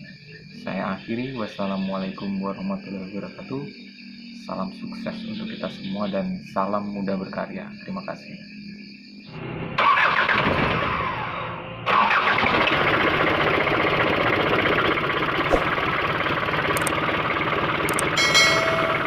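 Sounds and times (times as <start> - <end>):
car engine through howling exhaust: 9.4 - 19.0.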